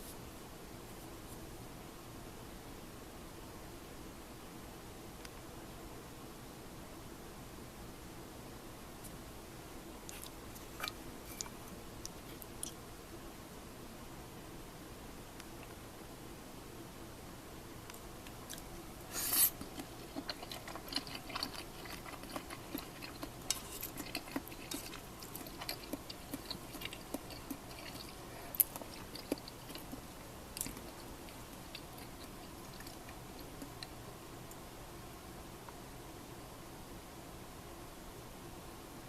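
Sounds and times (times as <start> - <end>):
low steady hiss: 0.0 - 39.0
chewing: 10.1 - 12.8, 18.4 - 34.0.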